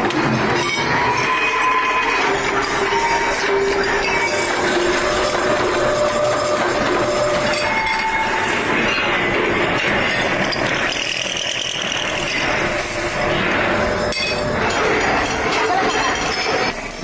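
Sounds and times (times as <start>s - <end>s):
metalworking machinery running: 0.0s - 17.0s
ringing squeals: 0.4s - 16.9s.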